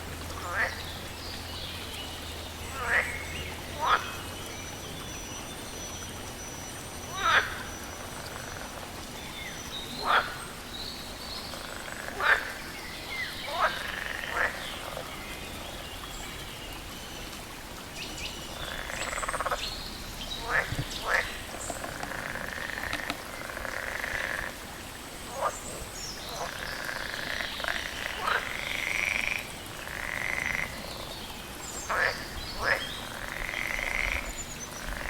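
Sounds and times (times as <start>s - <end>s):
buzzy chorus of frogs: 0.4s - 0.8s, 2.8s - 3.2s, 3.8s - 4.2s, 7.1s - 8.9s, 10.0s - 10.4s, 11.5s - 12.7s, 13.3s - 15.0s, 18.5s - 19.6s, 20.4s - 24.6s, 26.4s - 30.8s, 31.9s - 35.0s.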